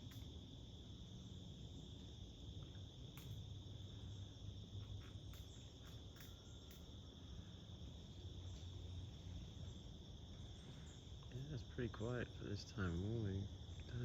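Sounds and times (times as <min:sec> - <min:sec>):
crickets chirring: 0:00.0 - 0:14.0
soft ticks: 0:02.6 - 0:03.4, 0:05.0 - 0:06.9.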